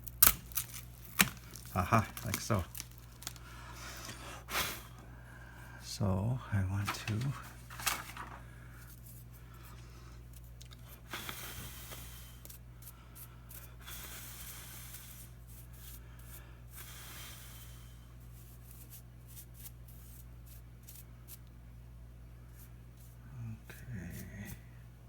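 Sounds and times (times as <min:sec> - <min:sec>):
faint breathing: 0:03.2 - 0:05.9, 0:08.4 - 0:10.3, 0:10.9 - 0:18.2.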